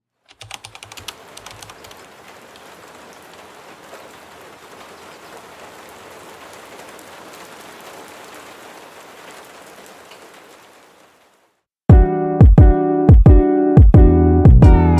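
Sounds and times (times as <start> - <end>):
steady rain falling: 0.1 - 11.7.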